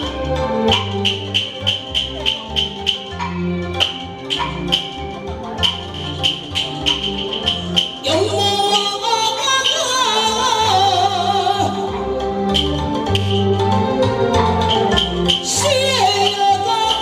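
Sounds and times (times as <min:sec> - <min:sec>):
sliding wavering melody: 0:00.0 - 0:17.0
steady musical accompaniment: 0:00.0 - 0:17.0
ringing percussion strokes: 0:00.7 - 0:08.2.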